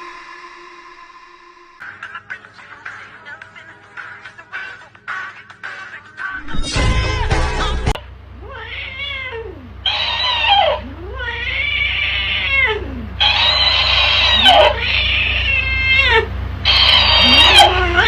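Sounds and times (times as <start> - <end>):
cat yowling: 8.4 - 18.0.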